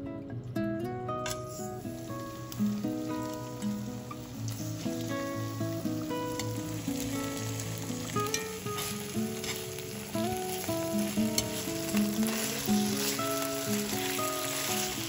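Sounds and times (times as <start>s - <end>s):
background music: 0.0s - 15.0s
food sizzling in a pan: 1.3s - 15.0s
utensil clicking in a pan: 6.2s - 9.7s, 10.4s - 14.8s.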